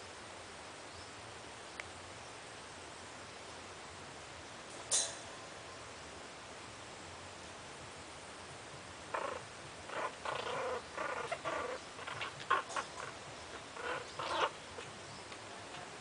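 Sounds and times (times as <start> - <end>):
puppies whining and yipping: 9.2 - 14.9.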